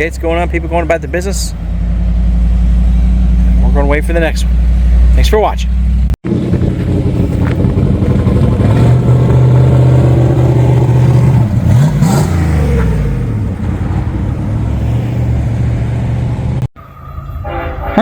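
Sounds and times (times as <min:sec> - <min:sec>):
road traffic passing: 0:00.0 - 0:18.0
vehicle passing by: 0:06.4 - 0:16.7.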